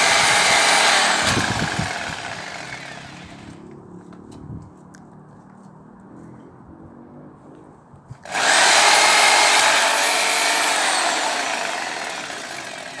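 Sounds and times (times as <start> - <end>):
power saw cutting tree: 0.0 - 3.6, 8.2 - 13.0.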